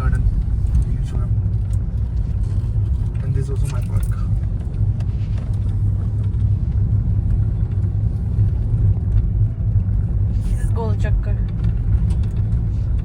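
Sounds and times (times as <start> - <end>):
moving vehicle rumble: 0.0 - 13.0.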